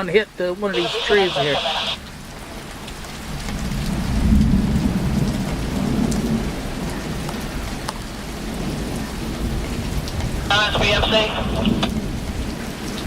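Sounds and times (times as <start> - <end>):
steady rain: 0.0 - 13.0
thunder rumbling: 8.7 - 12.6.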